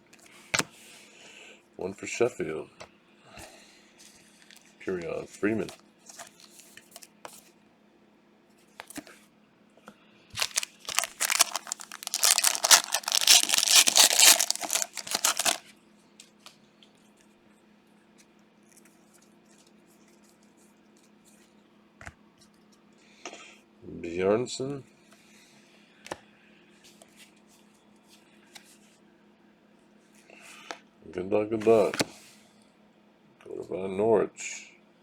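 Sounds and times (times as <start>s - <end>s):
plastic packaging crackling: 10.4s - 15.6s.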